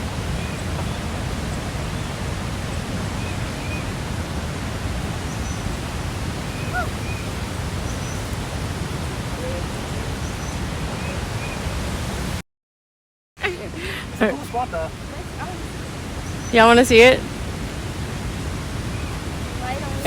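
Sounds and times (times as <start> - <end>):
waterfall roaring: 0.0 - 12.4, 13.5 - 20.0.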